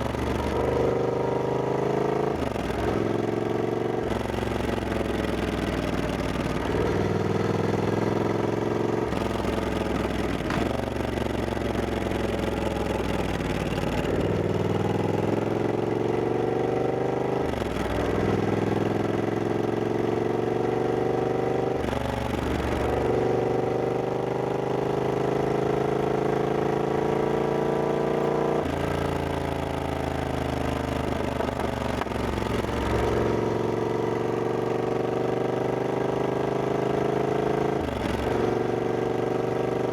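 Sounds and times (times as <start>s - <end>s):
road noise: 0.0s - 15.7s
motorcycle engine accelerating: 0.0s - 39.9s.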